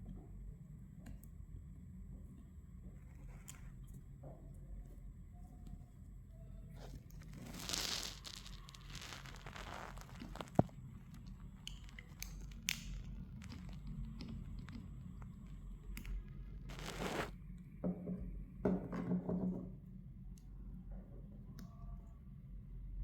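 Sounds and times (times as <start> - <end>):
crinkling: 6.7 - 17.4
scraping: 7.2 - 10.9, 16.7 - 17.3.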